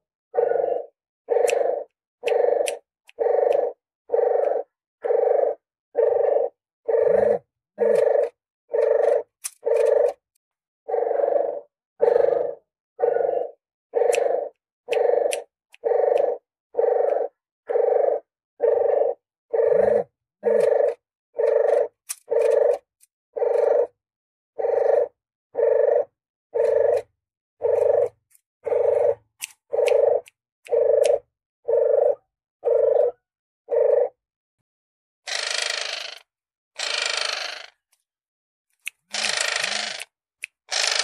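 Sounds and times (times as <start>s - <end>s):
dove cooing: 0.3s - 10.2s, 10.9s - 22.8s, 23.4s - 24.0s, 24.6s - 34.2s.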